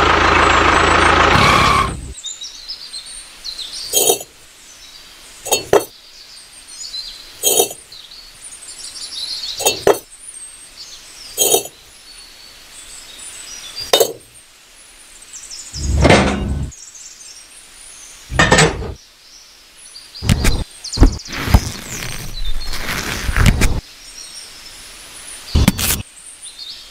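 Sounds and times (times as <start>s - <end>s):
motor running: 0.0s - 2.1s
faint high chirping: 3.5s - 14.4s.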